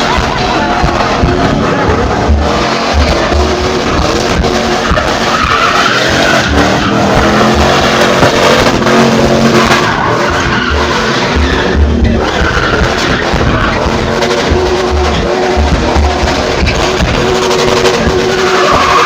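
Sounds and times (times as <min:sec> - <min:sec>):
car engine running hard: 0:00.0 - 0:19.0
music with bass beat: 0:00.0 - 0:19.0
tyres skidding on pavement: 0:00.0 - 0:19.0.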